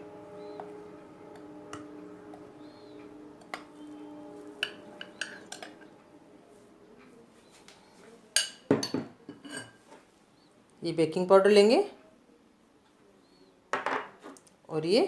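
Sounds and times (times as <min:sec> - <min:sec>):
metal utensils clinking on bowl: 0:04.6 - 0:05.9, 0:08.4 - 0:09.8.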